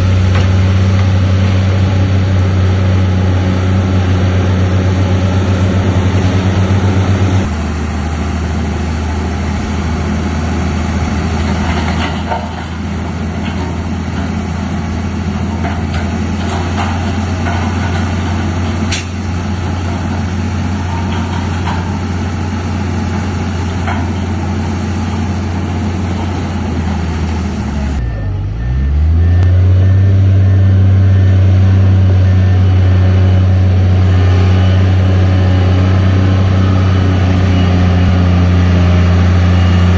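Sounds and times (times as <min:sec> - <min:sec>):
heavy diesel machine engine: 0:00.0 - 0:39.9
faint repeating beep: 0:28.0 - 0:33.5.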